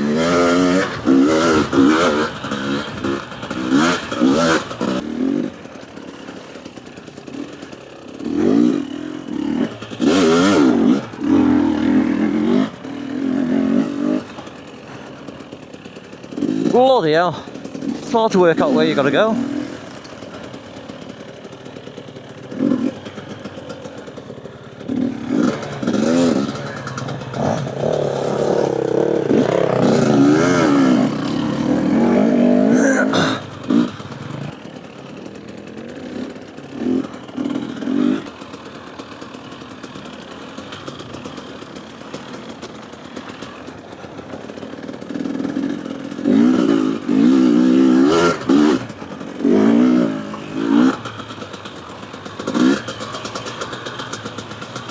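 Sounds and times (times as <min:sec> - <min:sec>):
motorcycle engine revving: 0:00.0 - 0:54.9
sharp clatter: 0:17.5 - 0:32.0, 0:33.4 - 0:54.9.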